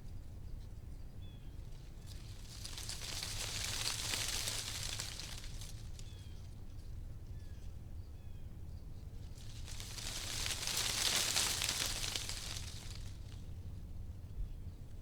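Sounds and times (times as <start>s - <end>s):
wind rustling tree leaves: 1.6s - 6.7s, 9.2s - 13.6s.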